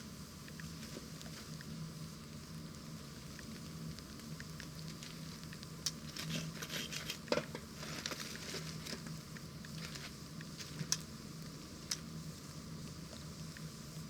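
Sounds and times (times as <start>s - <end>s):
wood fire crackling and popping: 3.4s - 12.1s.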